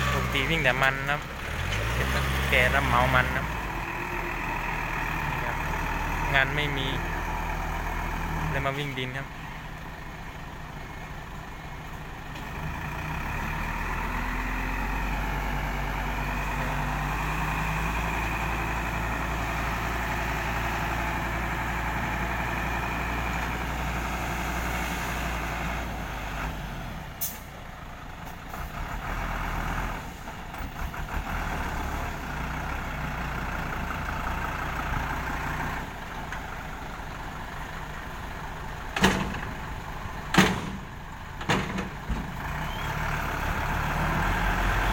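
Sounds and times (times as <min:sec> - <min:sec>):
diesel truck engine running: 0:00.0 - 0:44.9
air brake hisses: 0:27.2 - 0:27.5.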